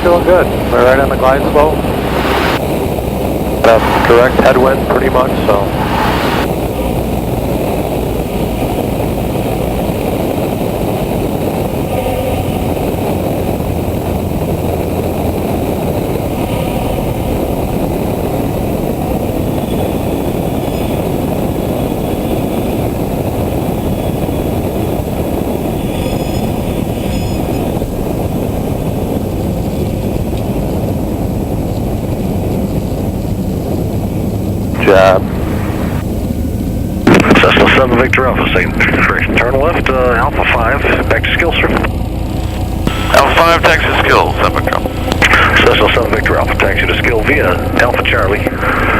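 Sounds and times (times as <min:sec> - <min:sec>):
propeller plane engine running: 0:00.0 - 0:48.9
air rushing over airframe: 0:01.5 - 0:08.4, 0:33.8 - 0:37.0.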